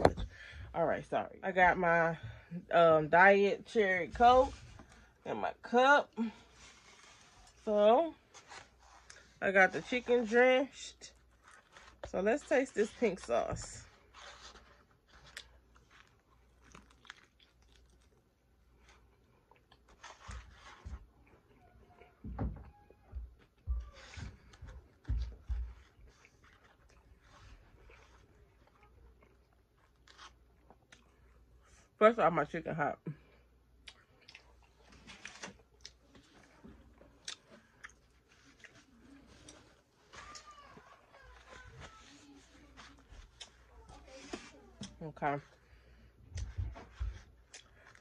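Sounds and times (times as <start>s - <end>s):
person chewing: 11.2s - 12.0s, 15.1s - 21.6s, 25.8s - 31.4s, 33.7s - 39.9s, 47.3s - 48.0s.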